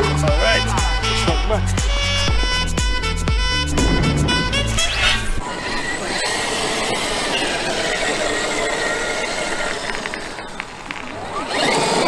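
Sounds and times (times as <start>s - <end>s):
drivetrain and tyres rumbling: 0.0s - 12.0s
electric motor whining: 0.0s - 12.0s.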